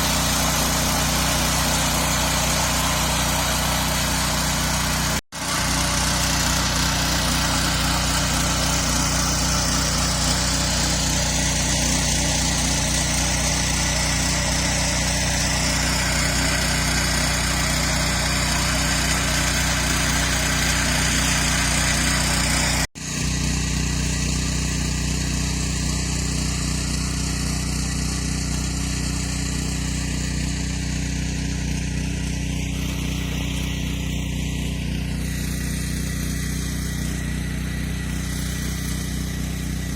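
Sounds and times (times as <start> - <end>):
walk-behind tractor engine running: 0.0 - 39.9.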